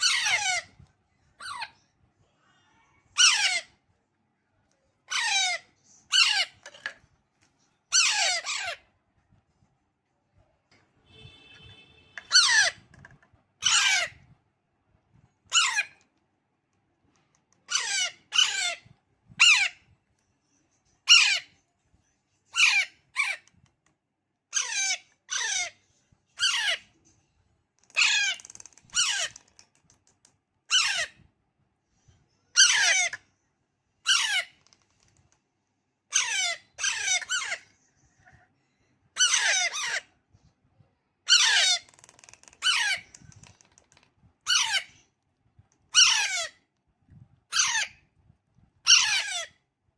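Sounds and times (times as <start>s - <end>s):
parrot chick squawking: 0.0s - 0.8s, 3.1s - 3.8s, 5.1s - 6.6s, 7.9s - 8.9s, 12.2s - 12.9s, 13.6s - 14.2s, 15.5s - 16.0s, 17.6s - 19.8s, 21.0s - 21.6s, 22.5s - 23.5s, 24.5s - 25.8s, 26.4s - 26.9s, 28.0s - 29.4s, 30.7s - 31.2s, 32.5s - 33.2s, 34.0s - 34.6s, 36.1s - 38.4s, 39.2s - 40.1s, 41.2s - 41.9s, 42.6s - 43.2s, 44.4s - 45.0s, 45.9s - 46.6s, 47.5s - 48.0s, 48.8s - 49.6s.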